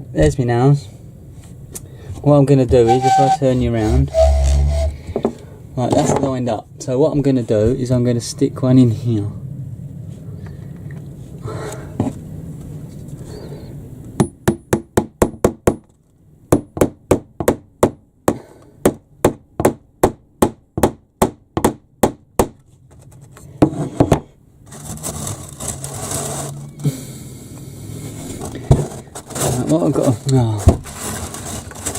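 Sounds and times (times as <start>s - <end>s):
hammer tapping nail into wood: 16.5s - 22.6s.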